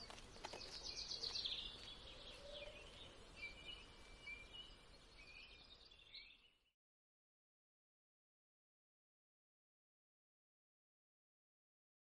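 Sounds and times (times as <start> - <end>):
faint birdsong: 0.0 - 6.8.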